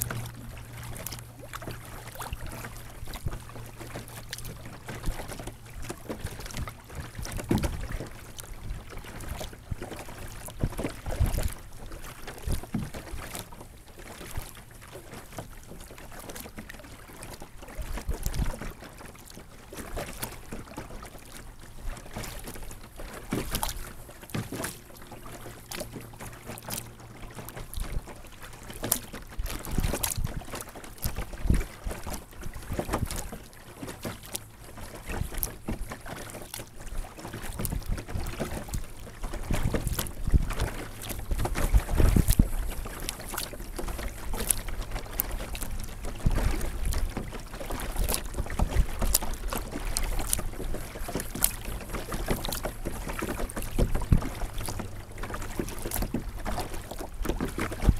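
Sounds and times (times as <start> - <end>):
wind rumble on microphone: 0.0 - 14.8, 17.8 - 18.8, 26.8 - 57.9
water splashing and lapping: 0.0 - 57.9.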